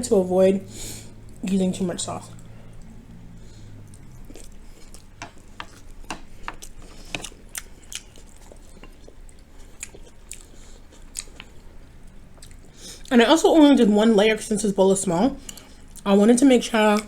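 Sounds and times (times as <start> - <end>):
wet chewing sounds: 2.3 - 13.1.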